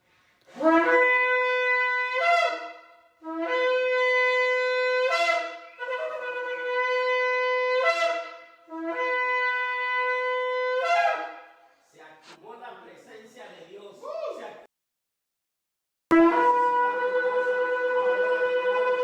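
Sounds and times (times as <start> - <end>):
shofar blasts: 0.5 - 12.4, 16.1 - 19.0.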